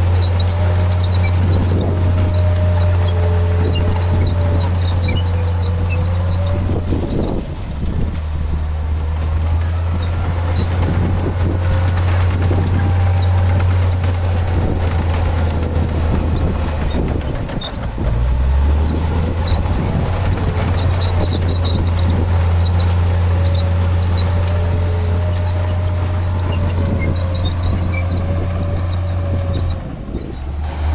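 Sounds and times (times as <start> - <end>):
bulldozer diesel engine running: 0.0 - 30.9.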